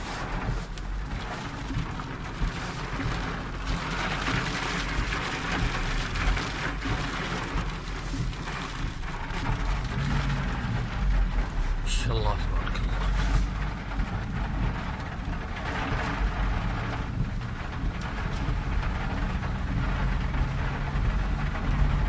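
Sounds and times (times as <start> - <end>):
constant low rumble: 0.0 - 22.0
heavy rain pouring: 0.0 - 22.0.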